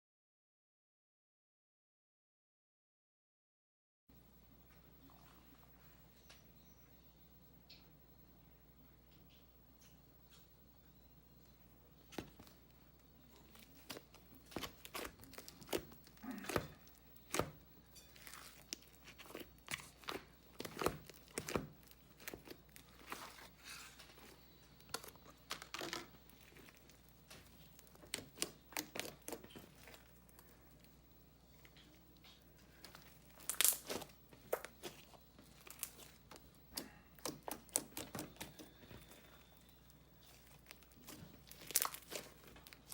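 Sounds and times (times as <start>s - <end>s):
slime squished by hand: 13.4s - 17.6s, 18.2s - 30.6s, 31.6s - 42.9s
sharp pops and crackles: 31.6s - 39.2s.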